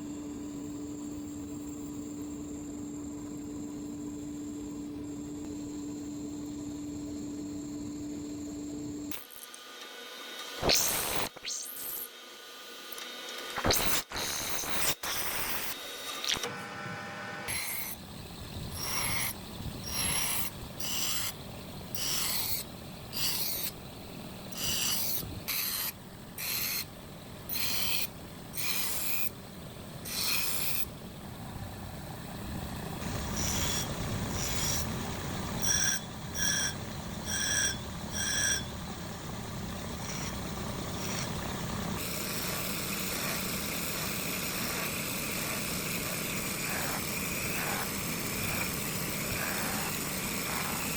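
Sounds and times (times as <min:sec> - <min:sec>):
file scraping steel: 0:19.9 - 0:23.7, 0:24.5 - 0:26.9, 0:27.5 - 0:29.3, 0:30.0 - 0:30.9, 0:33.4 - 0:34.9, 0:42.0 - 0:50.9
steady running noise: 0:30.9 - 0:50.9.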